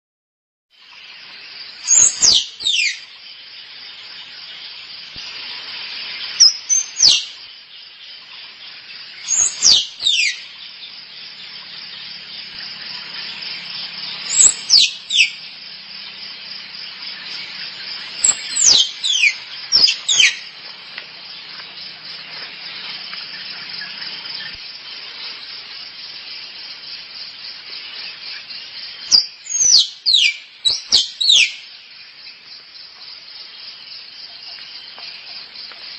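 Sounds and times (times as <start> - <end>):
shrill insect chorus: 0.8 - 35.9
squirrel calling: 1.8 - 3.2, 9.0 - 11.8, 14.0 - 15.6, 16.2 - 20.6, 29.1 - 31.7.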